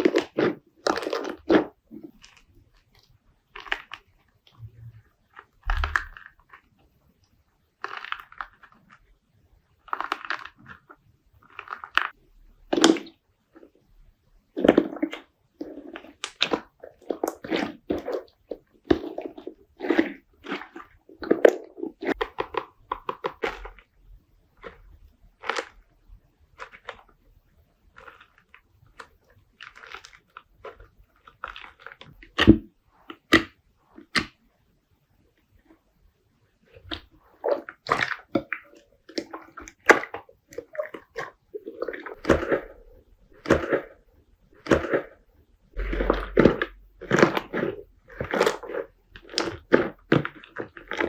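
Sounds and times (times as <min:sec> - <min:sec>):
slime squishing and crackling: 0:00.0 - 0:06.9, 0:07.7 - 0:13.9, 0:14.5 - 0:34.4, 0:36.6 - 0:51.0.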